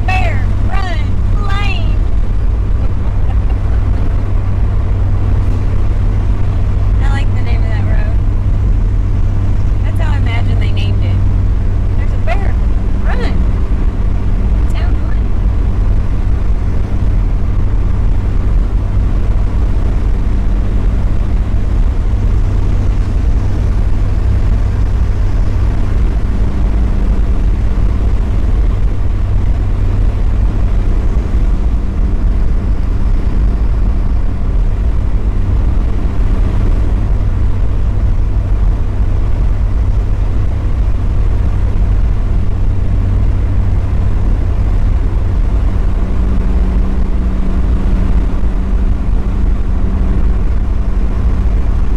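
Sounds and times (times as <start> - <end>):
car engine drone: 0.0 - 51.9
road noise: 0.0 - 51.9.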